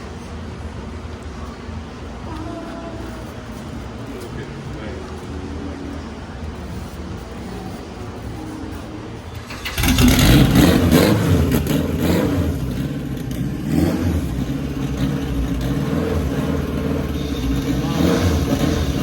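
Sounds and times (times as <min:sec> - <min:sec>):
car engine starting and running: 0:09.2 - 0:19.0.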